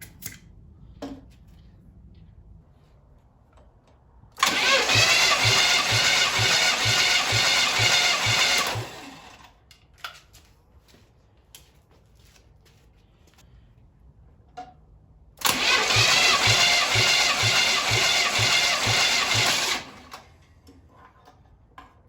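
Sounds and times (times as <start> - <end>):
starter motor cranking engine: 4.4 - 9.6, 15.4 - 20.5.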